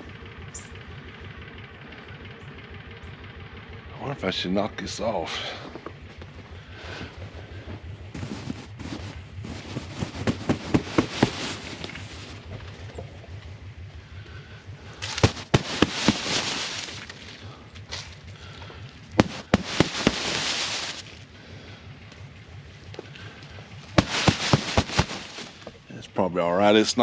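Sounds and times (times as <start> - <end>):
snow sliding down plastic: 6.8 - 12.5, 15.0 - 17.4, 19.2 - 21.2, 24.0 - 25.8
sharp knocks on plastic cover: 15.1 - 16.8, 19.2 - 20.9, 24.0 - 25.5.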